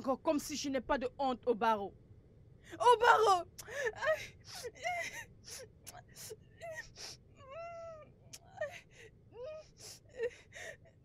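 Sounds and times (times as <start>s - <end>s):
person sobbing: 2.8s - 6.9s.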